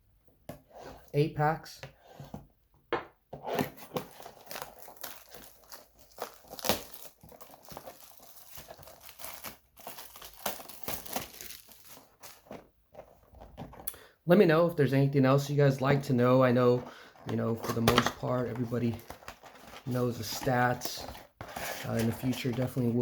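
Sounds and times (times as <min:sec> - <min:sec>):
plastic wrapping tearing and crinkling: 0:03.5 - 0:12.5
foil packs rustling: 0:03.7 - 0:13.8, 0:16.0 - 0:23.0.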